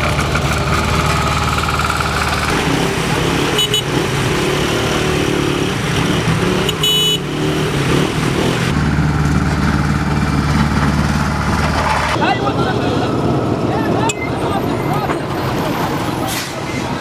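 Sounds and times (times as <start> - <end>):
heavy machinery engines running: 0.0 - 17.0.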